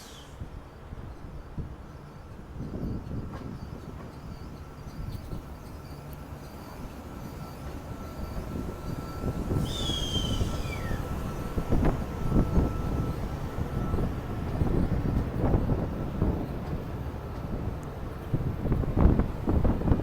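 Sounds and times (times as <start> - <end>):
passenger train rumbling: 0.0 - 20.0
high squeal falling in pitch: 9.5 - 11.5.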